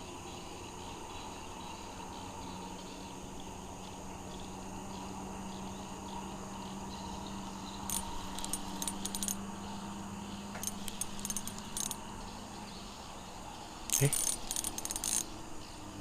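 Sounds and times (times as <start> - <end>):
night insects chorus: 0.0 - 16.0
small metallic jingling: 7.8 - 9.7, 10.6 - 12.2, 13.8 - 15.7.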